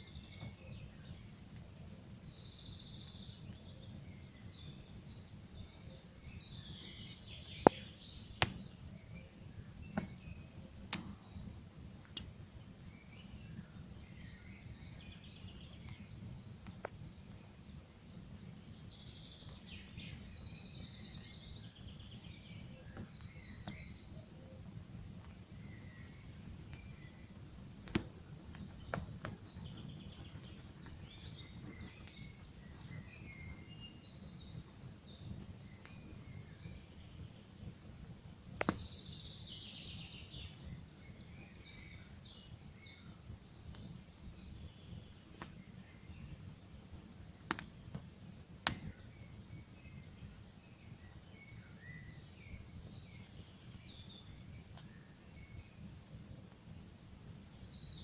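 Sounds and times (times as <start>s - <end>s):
small birds chirping: 0.0s - 58.0s
campfire crackling: 7.6s - 8.8s, 10.8s - 13.4s, 26.1s - 32.9s, 47.3s - 49.2s.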